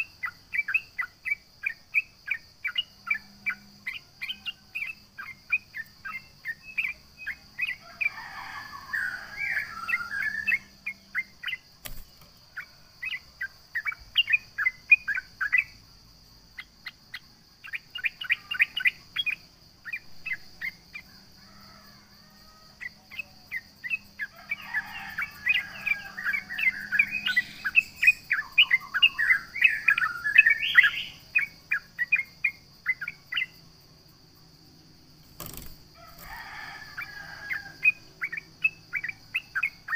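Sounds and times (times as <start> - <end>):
bird singing chirps and warbling: 0.0 - 15.8, 16.6 - 21.2, 22.8 - 33.6, 36.9 - 39.9.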